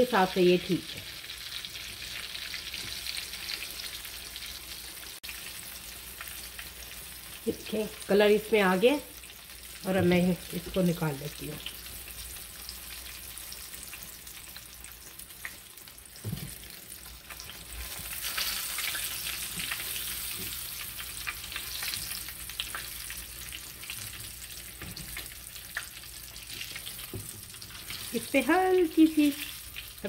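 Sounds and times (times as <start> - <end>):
fish sizzling in a frying pan: 0.0 - 30.0.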